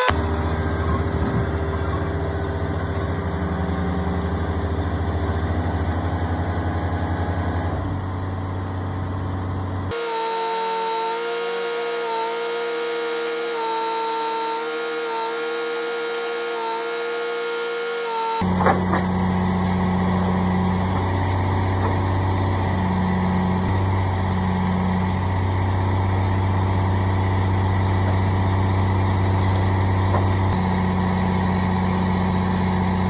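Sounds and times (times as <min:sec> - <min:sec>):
engine running: 0:00.0 - 0:33.0
horn-like pitched drone: 0:09.9 - 0:21.0.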